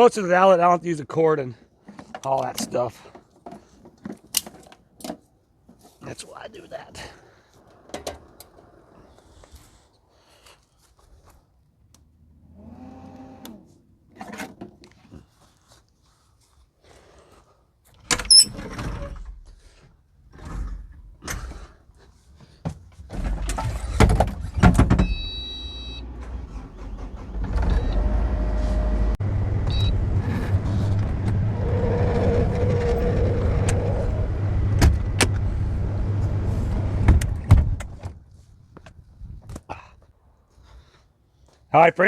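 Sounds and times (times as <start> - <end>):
low machine hum: 27.3 - 37.1.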